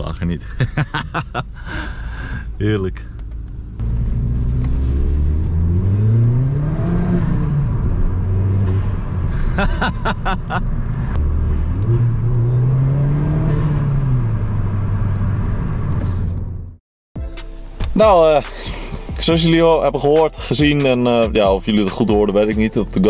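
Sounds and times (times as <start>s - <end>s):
car engine accelerating: 3.1s - 16.8s.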